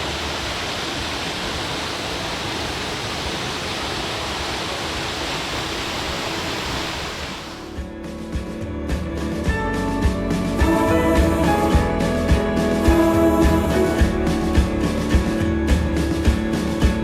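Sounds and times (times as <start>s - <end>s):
waterfall pouring: 0.0s - 7.8s
background music: 7.7s - 17.0s.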